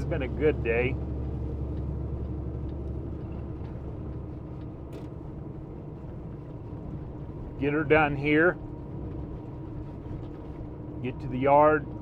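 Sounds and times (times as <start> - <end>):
truck engine and road rumble: 0.0 - 12.0.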